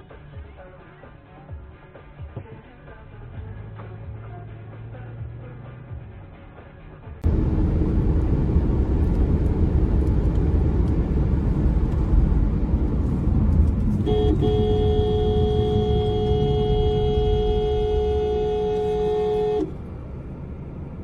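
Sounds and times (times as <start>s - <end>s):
vehicle road and engine rumble: 0.0s - 21.0s
car horn: 13.8s - 19.8s.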